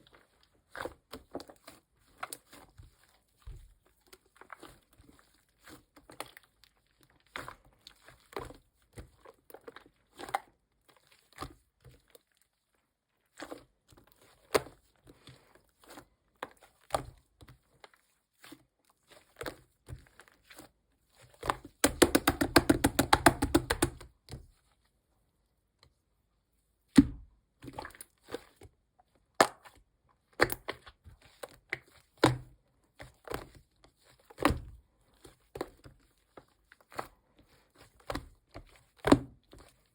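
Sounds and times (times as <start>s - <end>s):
slime squishing with sticky pops: 21.2s - 24.6s, 27.0s - 37.2s.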